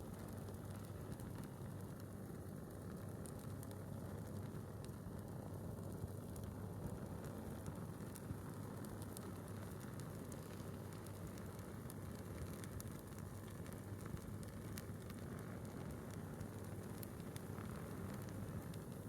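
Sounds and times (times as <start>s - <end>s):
fire low rumble: 0.0s - 19.0s
wood fire crackling: 0.1s - 19.0s.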